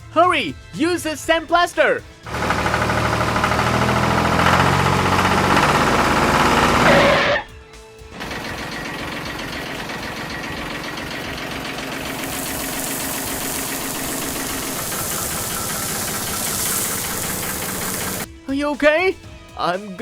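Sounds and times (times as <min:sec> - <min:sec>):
cartoon machine engine rattling: 0:02.3 - 0:07.5, 0:08.2 - 0:18.3
high hissing rush: 0:11.8 - 0:18.3.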